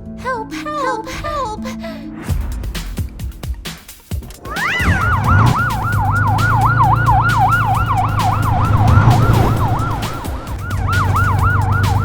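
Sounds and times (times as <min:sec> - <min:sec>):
emergency siren yelping: 0:04.4 - 0:12.0
low engine hum: 0:04.4 - 0:12.0.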